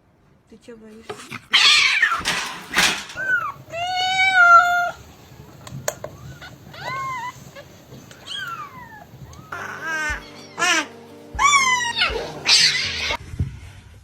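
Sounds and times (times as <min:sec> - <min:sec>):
pet animal crying: 0:01.4 - 0:05.2, 0:06.1 - 0:13.2
music: 0:09.4 - 0:13.2.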